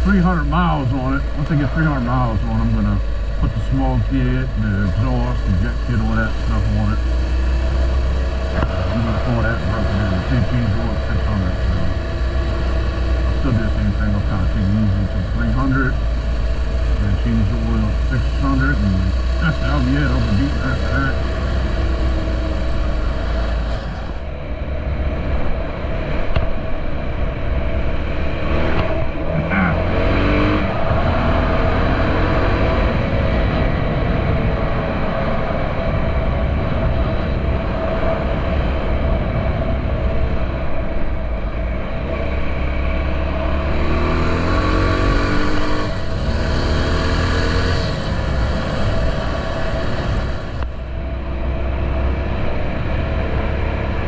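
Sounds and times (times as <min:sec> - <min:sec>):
wind rushing on microphone: 0:20.2 - 0:54.0.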